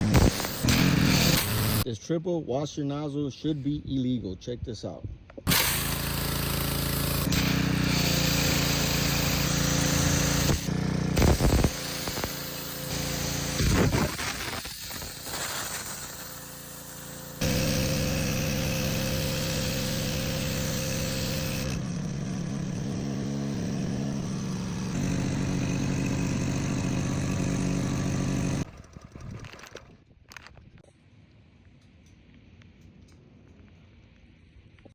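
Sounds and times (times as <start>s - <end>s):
pressure washer motor and pump hum: 0.0s - 1.9s, 5.5s - 29.3s.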